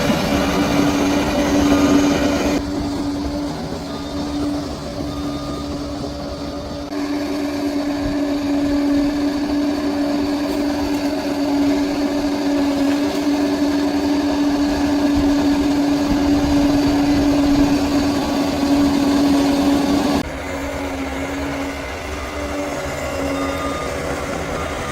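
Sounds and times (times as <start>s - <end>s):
bulldozer engine droning: 0.0s - 24.9s.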